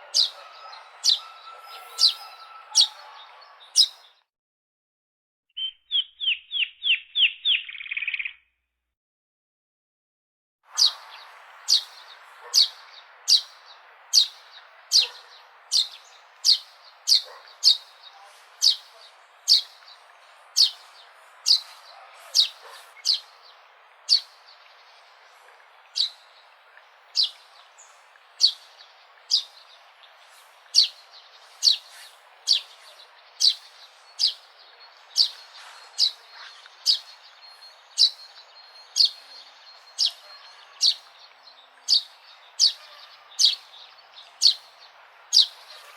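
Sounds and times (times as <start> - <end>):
sparrow chirping: 0.0 - 4.1, 5.6 - 8.4, 10.7 - 45.9
faint background hiss: 10.9 - 45.9.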